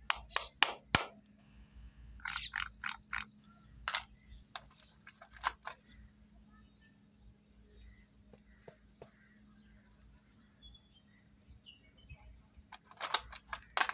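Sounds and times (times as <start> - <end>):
plastic toy pieces clicking: 2.2 - 3.3, 3.9 - 5.8, 12.7 - 13.9.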